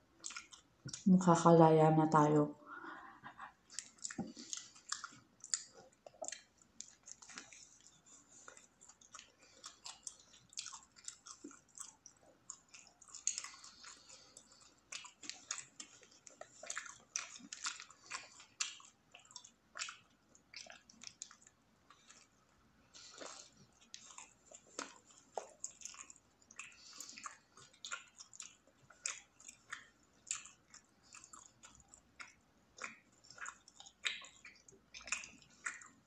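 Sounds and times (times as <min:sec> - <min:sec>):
person chewing food: 0:00.0 - 0:01.1, 0:02.8 - 0:36.0
mouth clicks and smacks: 0:03.3 - 0:14.0, 0:15.0 - 0:21.5, 0:23.2 - 0:36.0.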